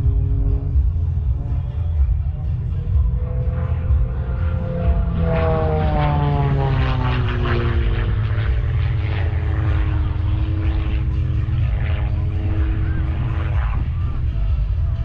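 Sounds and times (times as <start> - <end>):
propeller airplane flying past: 0.0 - 15.0.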